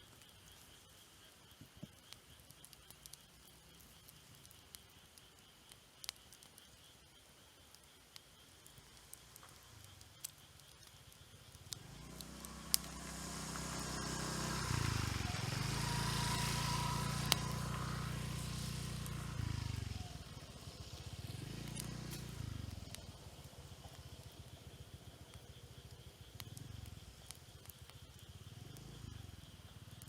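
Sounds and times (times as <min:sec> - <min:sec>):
firewood crackling pops: 0:07.8 - 0:14.8, 0:16.2 - 0:18.1, 0:20.0 - 0:24.4
vehicle engine passing: 0:12.4 - 0:20.0.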